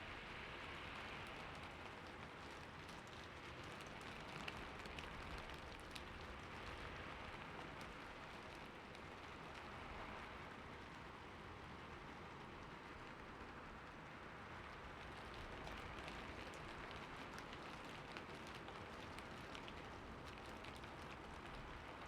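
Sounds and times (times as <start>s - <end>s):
raindrops ticking: 1.3s - 6.8s, 14.7s - 22.0s.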